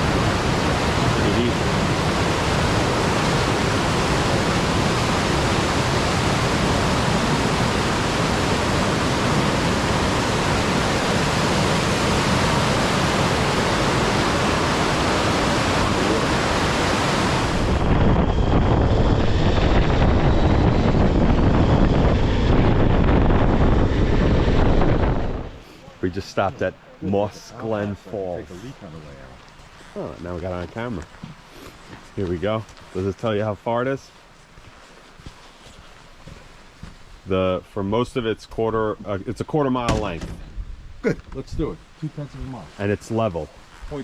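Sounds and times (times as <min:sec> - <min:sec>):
waterfall rushing: 0:00.0 - 0:17.8.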